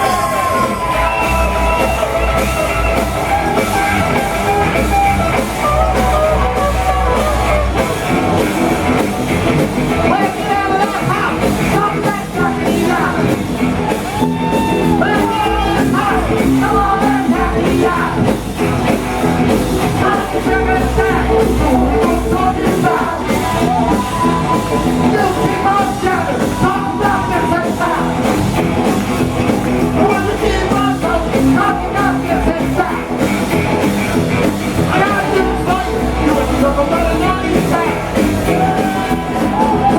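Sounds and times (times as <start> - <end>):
rock and roll band playing: 0.0 - 39.9
person singing and shouting: 9.9 - 18.4, 19.8 - 29.0, 29.6 - 33.3, 34.7 - 39.9.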